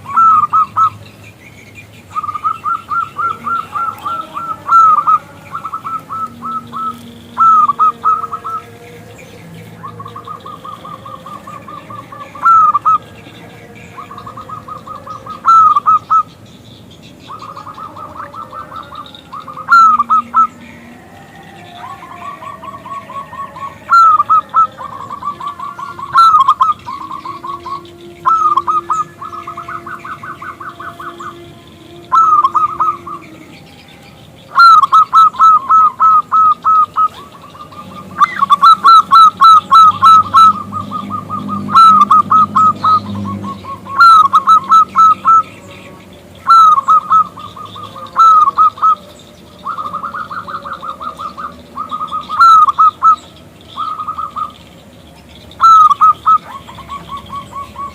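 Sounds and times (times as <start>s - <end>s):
dove cooing: 0.0s - 1.3s, 2.0s - 57.9s.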